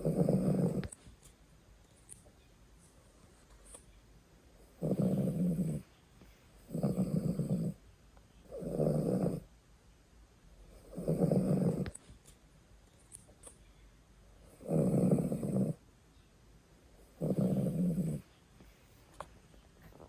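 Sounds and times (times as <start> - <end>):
dog snoring: 0.0 - 1.0, 4.6 - 5.9, 6.6 - 7.8, 8.4 - 9.5, 10.7 - 12.0, 14.4 - 15.8, 17.0 - 18.3.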